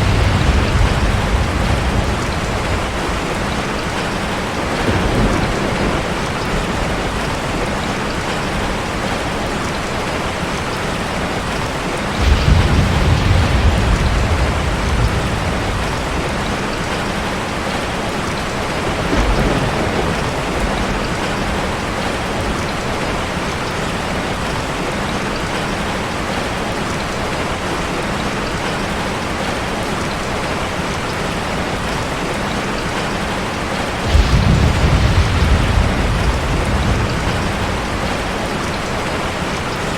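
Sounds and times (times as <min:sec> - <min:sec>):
thunder rumbling: 0:00.0 - 0:10.3, 0:11.4 - 0:23.9, 0:33.2 - 0:39.9
heavy rain on a car: 0:00.0 - 0:39.9.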